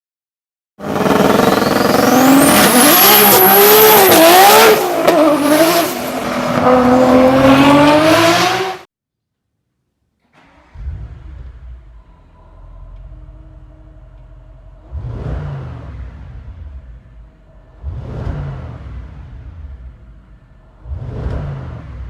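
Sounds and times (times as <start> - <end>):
car engine revving loudly: 0.8 - 8.9, 10.4 - 22.0
low engine rumble: 10.3 - 22.0.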